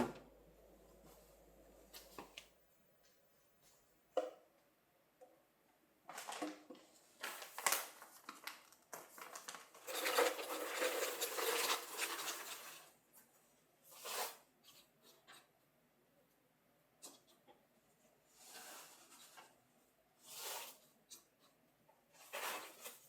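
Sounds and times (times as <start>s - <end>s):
rustling and crinkling: 6.0s - 15.5s, 17.0s - 23.0s.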